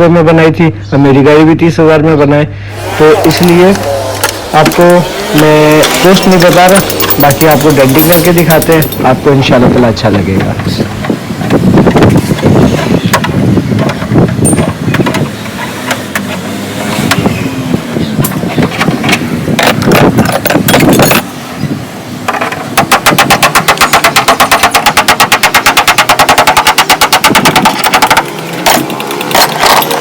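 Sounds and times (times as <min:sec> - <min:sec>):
knocks and clatter on metal: 0:05.8 - 0:09.1, 0:10.4 - 0:16.4, 0:18.2 - 0:21.3, 0:22.3 - 0:30.0
hammer blows on sheet metal: 0:22.7 - 0:28.9.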